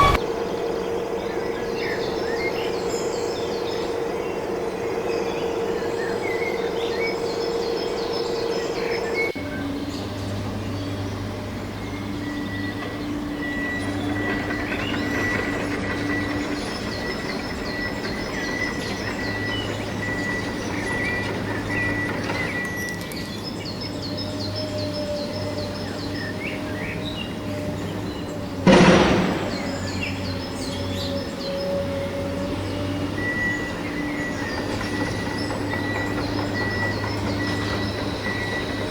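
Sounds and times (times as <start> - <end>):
high whine: 0.0 - 1.6
birds chirping: 0.0 - 38.9.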